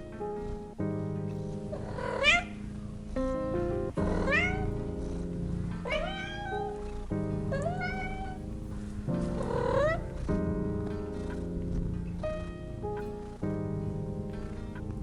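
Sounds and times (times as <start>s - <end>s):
soft background music: 0.0s - 15.0s
cat meowing: 2.0s - 2.6s, 4.1s - 4.7s, 5.8s - 6.9s, 7.5s - 8.4s.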